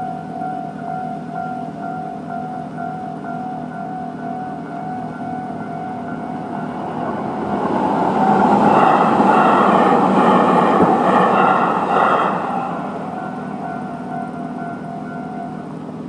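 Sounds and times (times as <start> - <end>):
crossing warning bell ringing: 0.0 - 16.0
train passing: 0.0 - 16.0.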